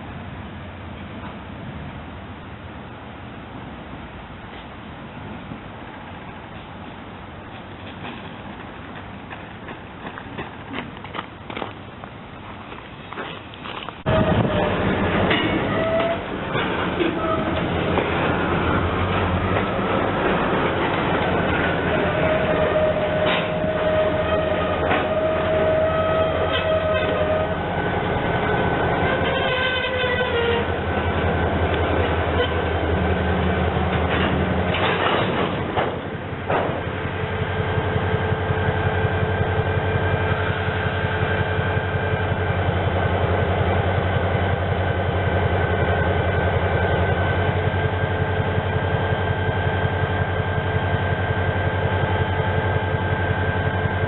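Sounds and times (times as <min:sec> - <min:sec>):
train low drone: 0:00.0 - 0:54.0
train clatter: 0:07.4 - 0:54.0
train horn: 0:14.1 - 0:16.3, 0:17.0 - 0:17.6, 0:21.9 - 0:27.7, 0:29.0 - 0:30.8, 0:32.3 - 0:32.7.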